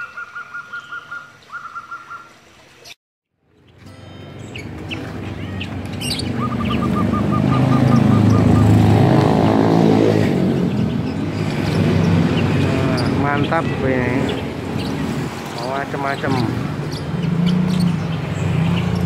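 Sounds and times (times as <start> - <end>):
bird trill: 0.0 - 2.4, 3.6 - 9.1, 10.5 - 15.0, 15.6 - 19.0
birds chirping: 0.0 - 19.0
vehicle engine passing: 4.3 - 19.0.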